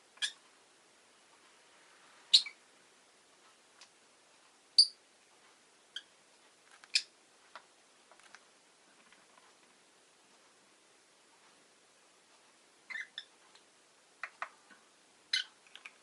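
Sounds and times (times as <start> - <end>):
lovebird sharp chirps: 2.3 - 2.6, 4.8 - 5.0, 12.9 - 13.3, 15.3 - 15.5.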